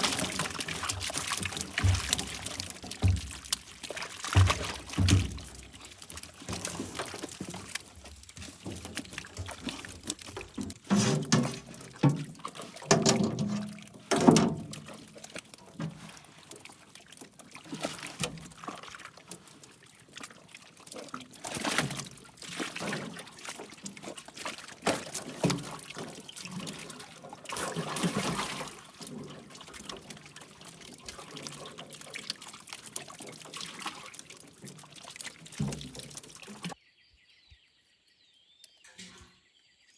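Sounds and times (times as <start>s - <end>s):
water splashing and trickling: 0.0s - 36.8s.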